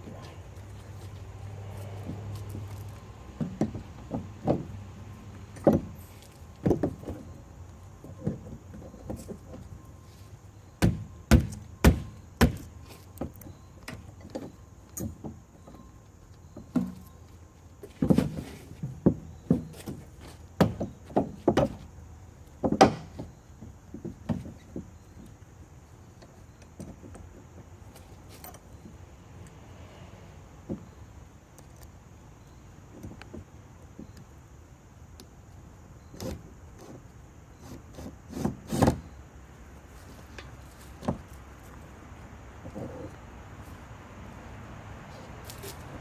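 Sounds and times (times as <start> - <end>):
knocks and clunks on metal and wood: 1.9 - 9.8, 10.8 - 25.4, 26.2 - 29.0, 30.6 - 31.0, 36.1 - 39.2, 40.3 - 41.4.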